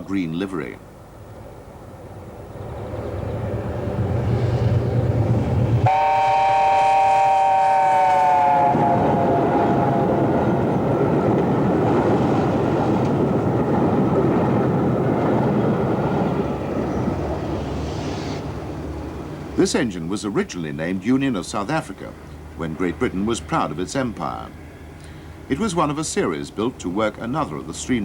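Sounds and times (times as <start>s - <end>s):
train running past: 0.8s - 28.0s
steam locomotive chime whistle: 5.8s - 10.1s.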